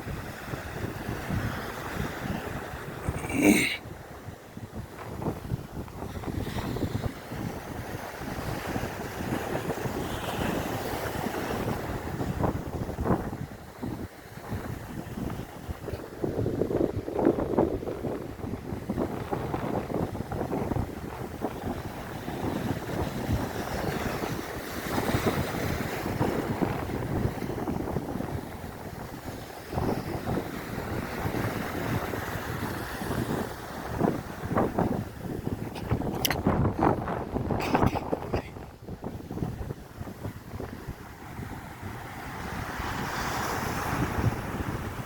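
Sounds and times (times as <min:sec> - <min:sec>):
wind buffeting microphone: 0:00.0 - 0:45.0
sea waves washing: 0:23.4 - 0:45.0.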